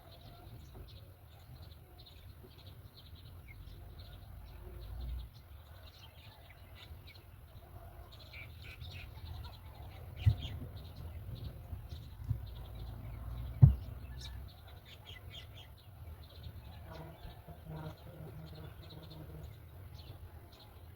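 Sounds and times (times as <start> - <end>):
bird chicks chirping: 0.0 - 20.9
sharp thump: 13.5 - 14.1.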